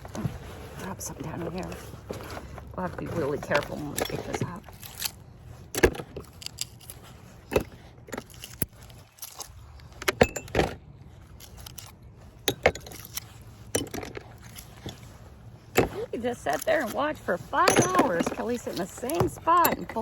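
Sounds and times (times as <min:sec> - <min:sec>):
scrap metal clinking: 0:00.2 - 0:20.0.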